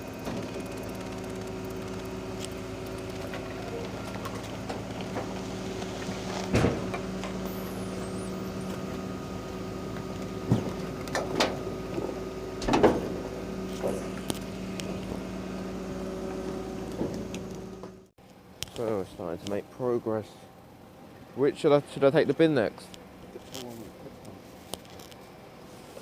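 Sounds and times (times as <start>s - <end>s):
garbage truck engine humming: 0.0s - 26.0s.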